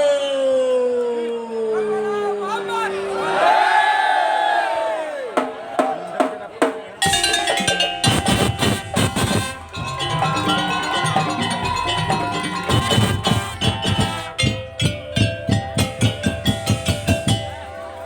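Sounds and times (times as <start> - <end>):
drums: 5.3 - 18.0
melodic tuned percussion: 7.0 - 18.0.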